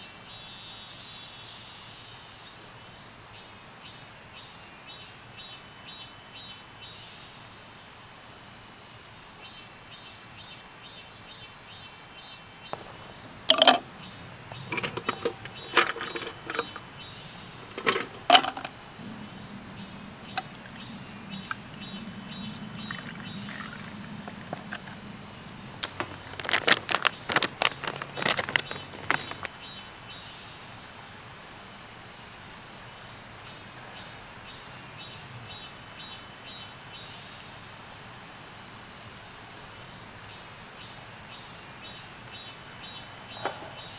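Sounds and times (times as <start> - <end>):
objects knocking and clattering: 12.8 - 21.9, 22.6 - 25.1, 25.7 - 29.6
faint chirping: 12.8 - 29.8.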